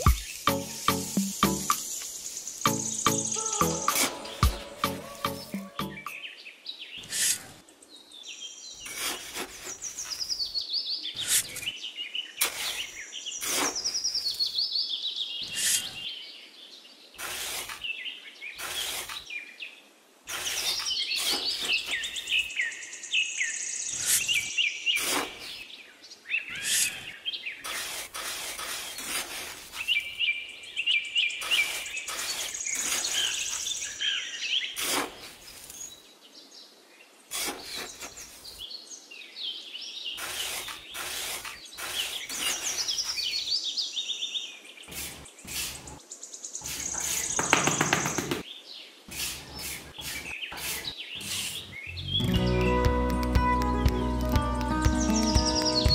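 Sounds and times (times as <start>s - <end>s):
birds chirping and singing: 0.0s - 19.6s, 20.3s - 34.8s, 37.4s - 52.8s, 54.7s - 55.9s
trowel digging into damp sand: 8.8s - 10.2s, 12.4s - 14.0s, 17.2s - 17.9s, 18.6s - 19.3s, 20.3s - 22.1s, 25.0s - 25.6s, 27.6s - 30.0s, 31.4s - 33.8s, 34.8s - 35.8s, 37.3s - 38.6s, 40.2s - 43.4s, 44.9s - 46.0s, 46.6s - 47.4s, 49.1s - 51.8s.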